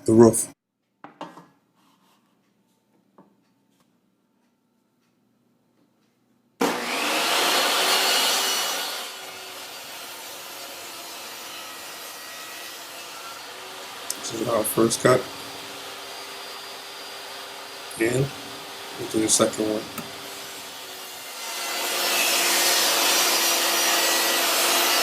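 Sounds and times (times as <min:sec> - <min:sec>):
circular saw cutting plywood: 0:06.6 - 0:25.0.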